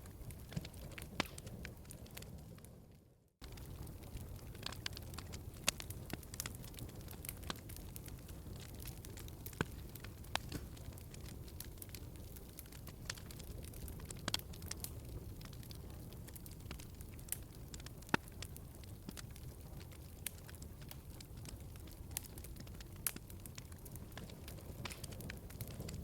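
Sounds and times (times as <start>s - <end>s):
fire popping and snapping: 0.0s - 26.0s
log fire crackling: 0.0s - 26.0s.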